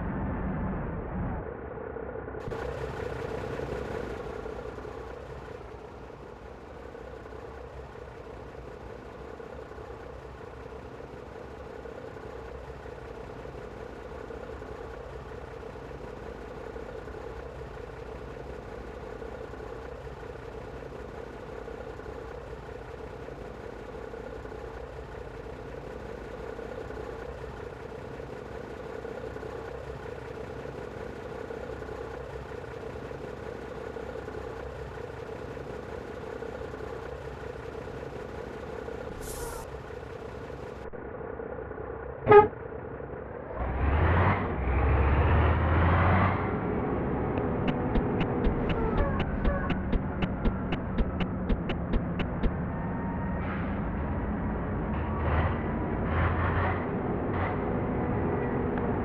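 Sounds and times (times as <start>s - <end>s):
diesel engine idling: 1.0s - 44.1s, 46.5s - 55.0s.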